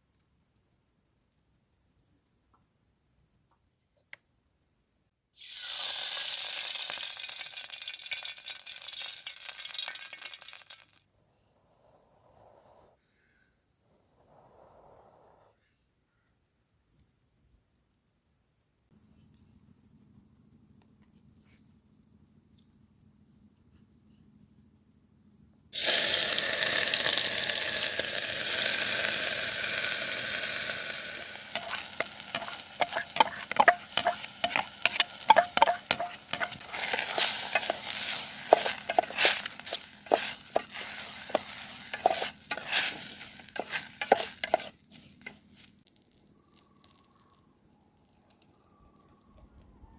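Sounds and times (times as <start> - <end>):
cricket chirping: 0.0 - 49.9
food sizzling in hot oil: 5.4 - 11.0, 25.8 - 45.8.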